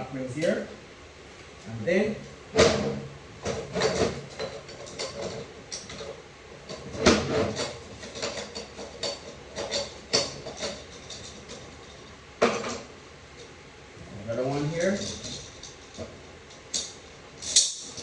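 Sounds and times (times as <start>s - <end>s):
hand tools clinking on steel parts: 3.8s - 12.8s, 14.6s - 18.0s.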